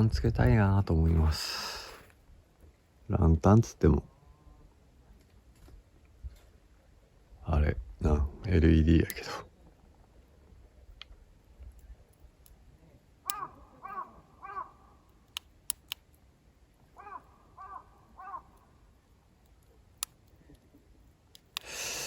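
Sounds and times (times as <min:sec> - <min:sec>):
crow cawing: 0:13.2 - 0:15.1, 0:17.0 - 0:18.8
sharp clicks: 0:15.2 - 0:16.2, 0:19.4 - 0:20.6, 0:21.3 - 0:21.8.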